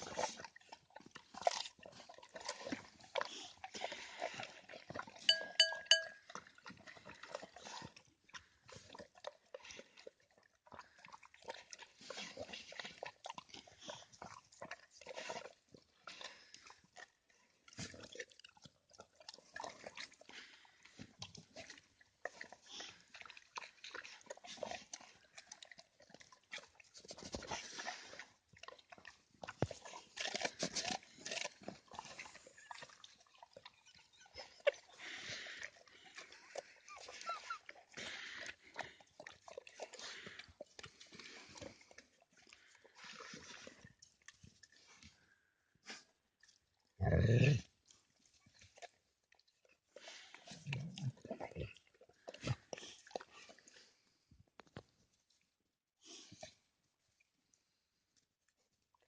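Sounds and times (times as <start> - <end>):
dog chewing food: 0.0 - 37.1.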